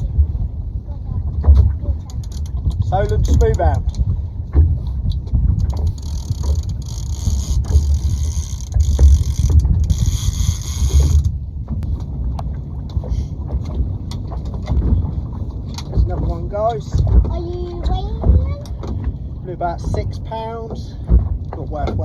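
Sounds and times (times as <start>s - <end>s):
low rumble: 0.0s - 22.0s
fishing reel whirring: 6.0s - 11.3s.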